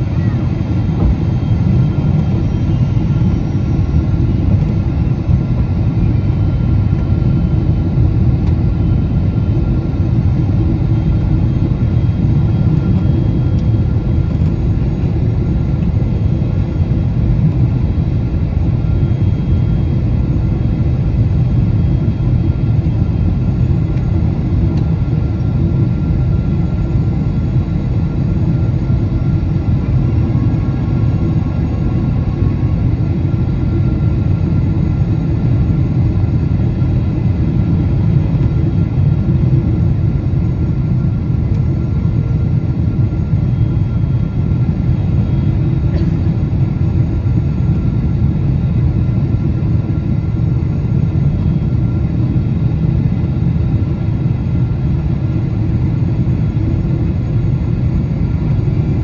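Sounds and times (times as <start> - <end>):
faint whining tones: 0.0 - 39.4
airliner cabin engine rumble: 0.0 - 59.0.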